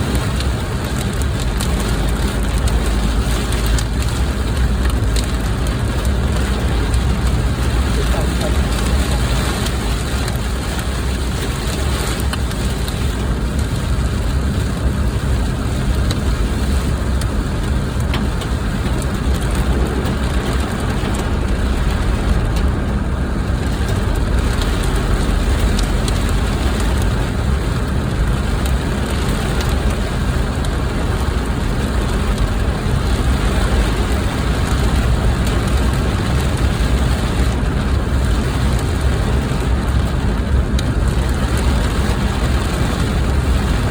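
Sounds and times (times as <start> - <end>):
rain hissing on a car: 0.0 - 43.9
road and engine rumble: 0.0 - 43.9.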